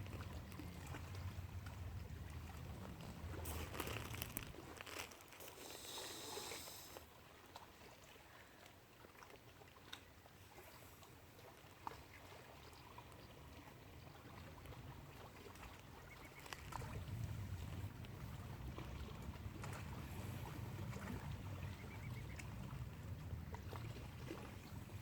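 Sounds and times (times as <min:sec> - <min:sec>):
wind rumbling on microphone: 0:00.0 - 0:05.0, 0:14.2 - 0:25.0
background hiss: 0:05.4 - 0:07.1.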